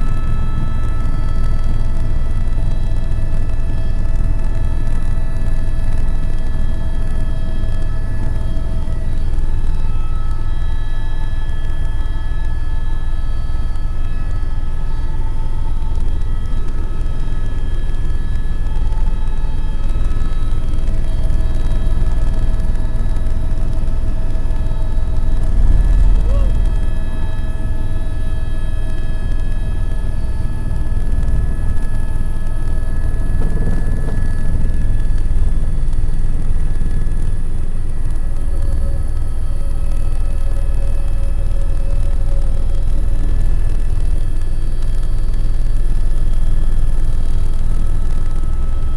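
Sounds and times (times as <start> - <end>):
helicopter rotor and engine rumble: 0.0 - 48.9
high whining tones: 0.0 - 48.9.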